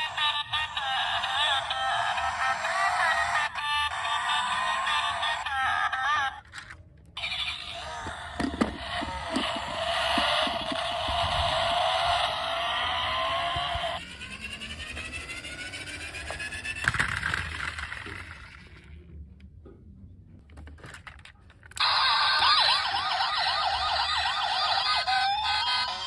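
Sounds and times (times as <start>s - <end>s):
toy siren yelping: 0.0s - 6.5s, 7.2s - 18.4s, 21.8s - 26.0s
soft rising tones: 8.5s - 16.8s.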